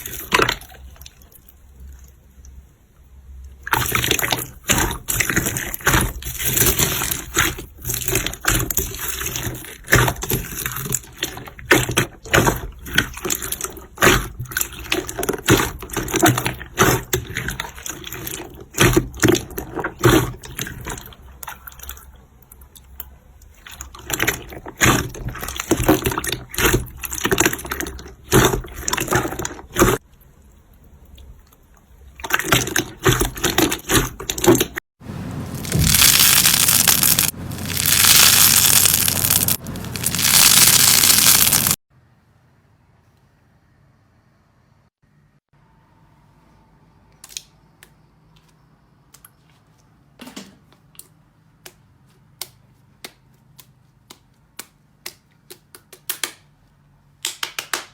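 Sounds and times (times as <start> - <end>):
slime squelching and popping: 35.6 - 41.8.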